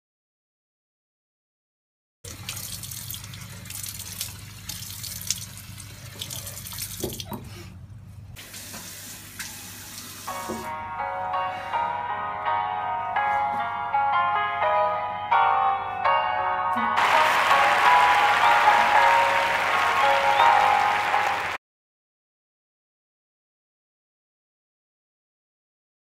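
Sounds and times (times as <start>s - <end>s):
tap water running into sink: 2.3s - 7.5s, 8.4s - 10.7s
music: 10.3s - 21.6s.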